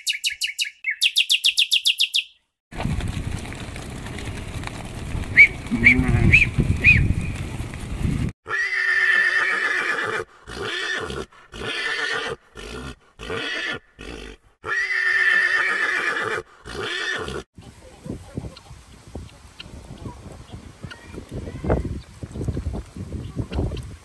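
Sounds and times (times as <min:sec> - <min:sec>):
horse neighing: 0:08.4 - 0:17.5.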